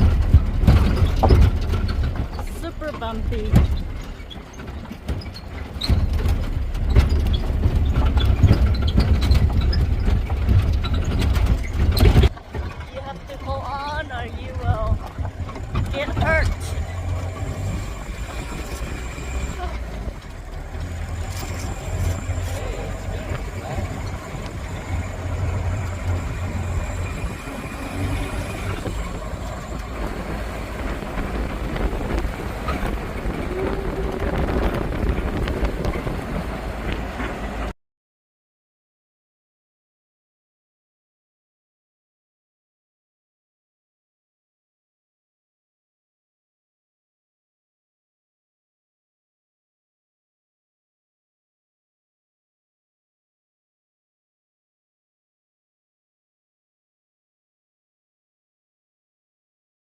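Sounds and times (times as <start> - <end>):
knocks and rattles from jolts: 0.0 - 37.4
wind noise: 0.0 - 37.7
pickup truck rumbling: 0.0 - 37.8.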